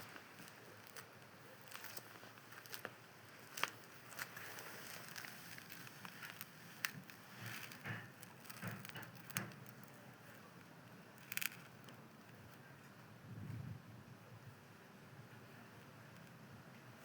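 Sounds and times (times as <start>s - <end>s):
cat crunching dry food: 0.0s - 10.0s.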